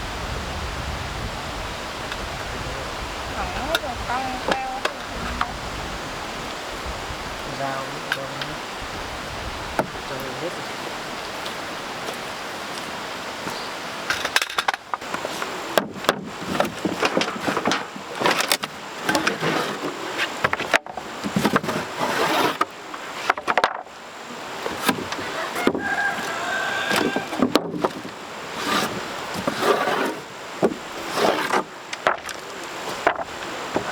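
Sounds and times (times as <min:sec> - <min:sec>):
steady hiss: 0:00.0 - 0:33.9
wood knocking and clattering: 0:12.8 - 0:23.9, 0:24.6 - 0:33.9.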